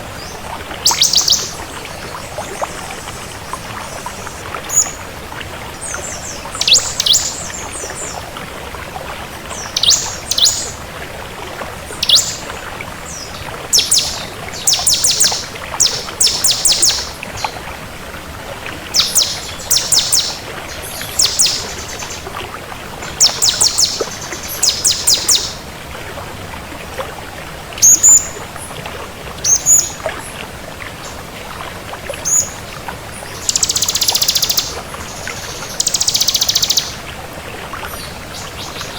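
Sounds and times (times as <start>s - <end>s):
bird chirping: 0.8s - 1.8s, 6.0s - 8.2s, 9.5s - 10.8s, 12.0s - 12.4s, 13.1s - 17.2s, 19.0s - 22.2s, 23.1s - 25.6s, 33.2s - 37.0s.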